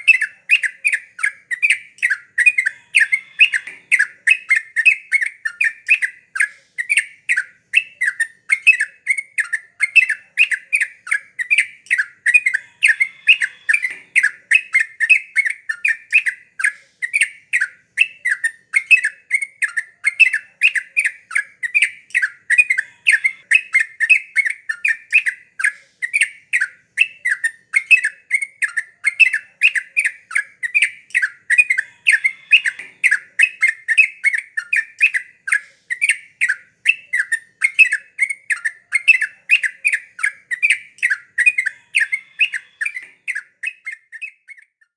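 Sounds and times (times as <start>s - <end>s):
bird singing bubbling notes: 0.0s - 16.4s, 27.0s - 44.6s.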